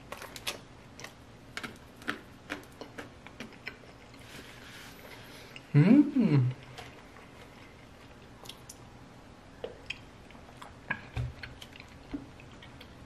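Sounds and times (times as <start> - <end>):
chewing fried food: 0.0 - 5.7, 9.7 - 13.0.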